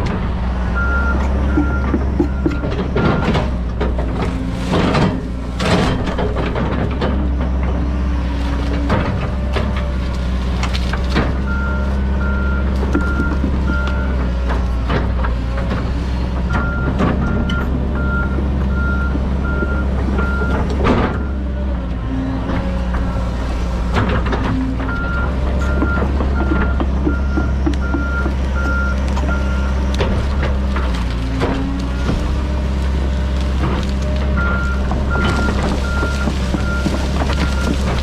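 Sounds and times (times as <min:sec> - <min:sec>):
excavator diesel engine running: 0:00.0 - 0:38.0
sharp cracks and knocks: 0:08.5 - 0:12.0, 0:25.6 - 0:38.0.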